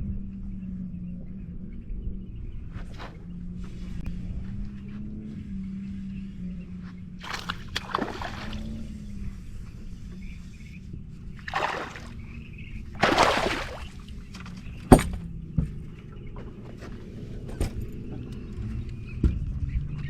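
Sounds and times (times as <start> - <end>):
steady low hum: 0.0 - 18.2
water splashing against boat: 7.2 - 9.3, 11.3 - 15.2.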